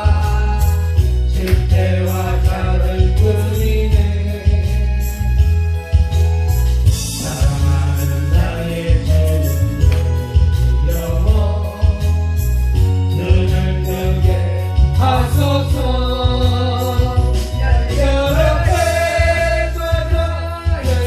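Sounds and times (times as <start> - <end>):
gospel band with bass and drums: 0.0 - 21.0
person singing: 7.1 - 10.1, 13.1 - 21.0.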